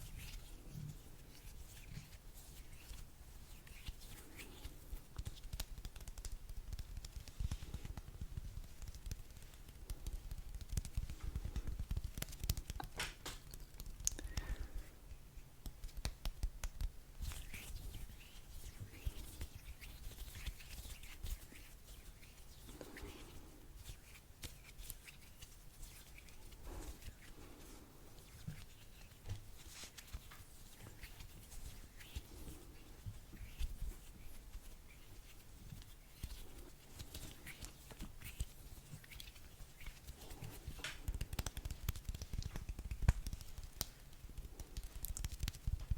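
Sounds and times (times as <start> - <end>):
small taps and clicks: 5.1 - 14.6, 15.6 - 17.4, 35.8 - 45.9
crinkling: 15.6 - 45.9.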